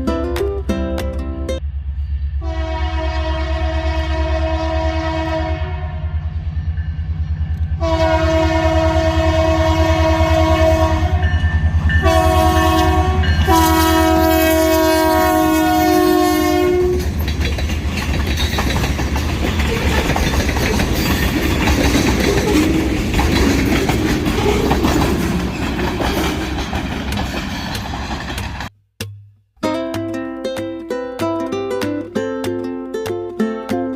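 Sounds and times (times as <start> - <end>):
music: 0.0 - 1.6, 29.0 - 33.9
locomotive horn blasts: 2.4 - 6.2, 7.8 - 17.1
locomotive engine rumble: 5.3 - 28.7
wheels clacking on rail joints: 11.2 - 28.7.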